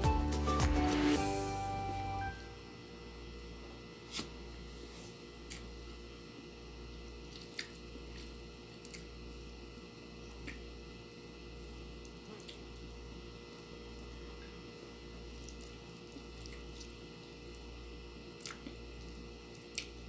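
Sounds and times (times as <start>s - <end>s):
steady low hum: 0.0s - 20.0s
soft chewing and mouth noises: 7.2s - 10.7s, 11.6s - 12.9s, 15.3s - 17.7s, 18.3s - 20.0s.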